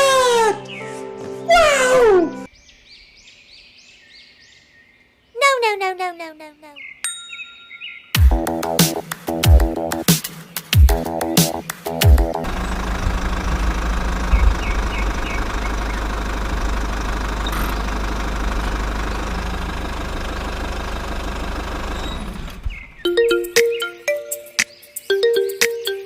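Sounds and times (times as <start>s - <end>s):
small water pump engine running: 12.4s - 22.6s.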